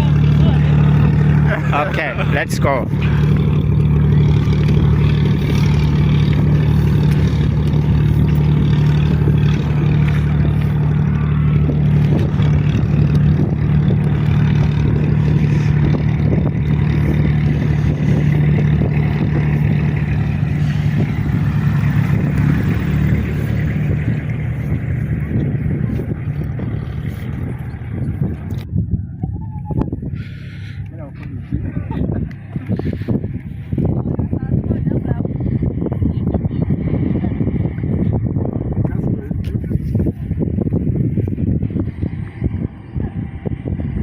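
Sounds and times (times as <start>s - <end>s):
engine droning: 0.0s - 44.0s.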